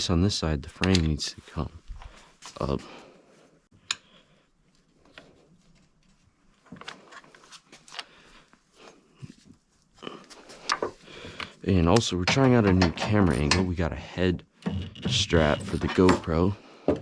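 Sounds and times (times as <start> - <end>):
metal clicks and knocks: 11.9 - 13.8, 14.6 - 17.0.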